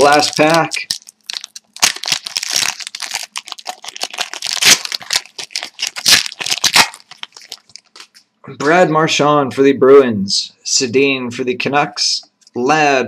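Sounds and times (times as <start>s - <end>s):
card pack wrapper crinkling: 0.0s - 8.2s.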